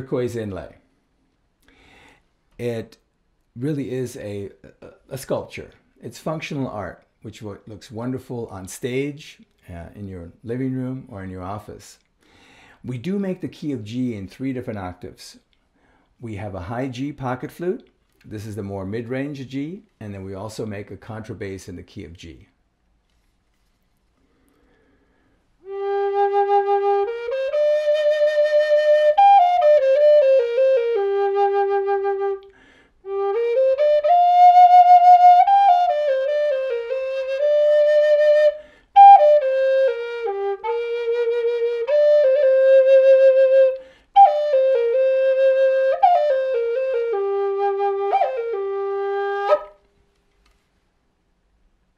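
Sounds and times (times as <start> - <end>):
player breathing: 1.6 - 2.4, 12.2 - 12.8, 15.7 - 16.2, 24.2 - 25.5, 32.5 - 33.0, 43.8 - 44.2
flute playing slow melody: 25.6 - 49.9.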